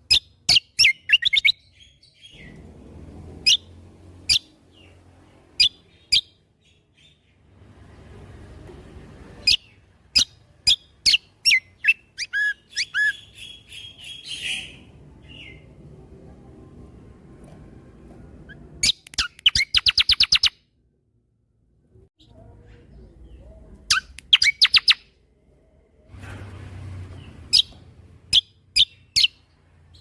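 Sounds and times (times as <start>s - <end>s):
bird singing whistled notes: 9.4s - 15.7s, 18.5s - 20.6s, 23.9s - 25.1s.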